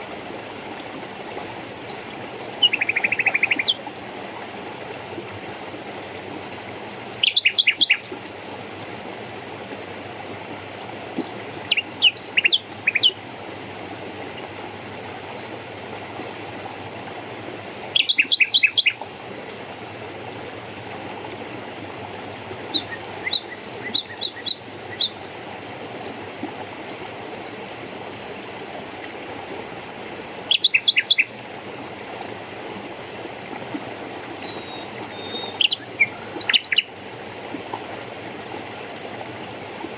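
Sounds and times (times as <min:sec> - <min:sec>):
flowing water rushing: 0:00.0 - 0:39.9
songbird singing: 0:01.9 - 0:03.8, 0:05.6 - 0:08.2, 0:11.2 - 0:13.2, 0:15.3 - 0:19.0, 0:22.7 - 0:25.2, 0:28.3 - 0:31.3, 0:34.4 - 0:36.9.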